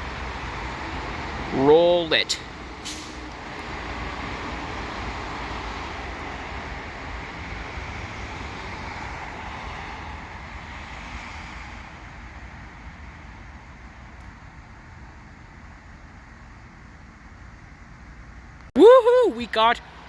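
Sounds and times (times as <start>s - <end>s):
freight train rumbling: 0.0s - 13.4s.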